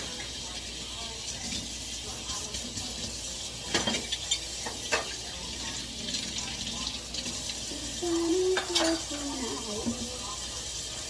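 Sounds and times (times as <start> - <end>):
tap water running into sink: 0.0 - 11.0
dishes clinking: 3.6 - 6.6, 8.1 - 10.2.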